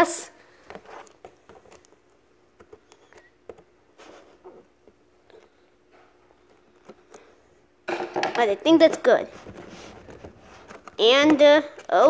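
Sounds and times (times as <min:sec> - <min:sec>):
tape and cardboard rustle: 0:09.3 - 0:12.0.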